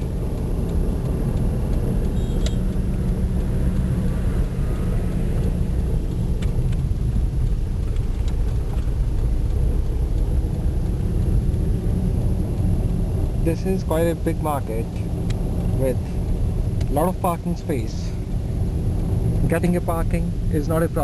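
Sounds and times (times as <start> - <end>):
faint clicks: 0.0 - 11.7
car engine rumble: 0.0 - 21.0.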